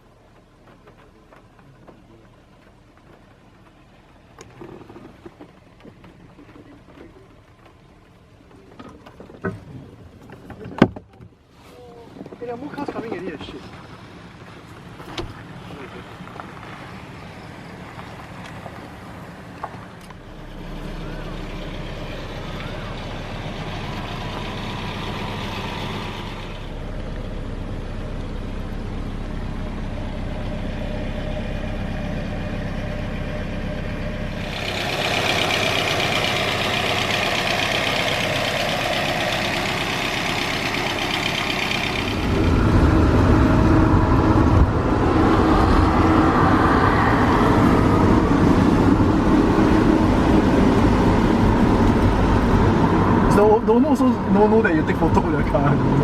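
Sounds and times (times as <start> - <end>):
car engine hum: 0.0 - 56.0.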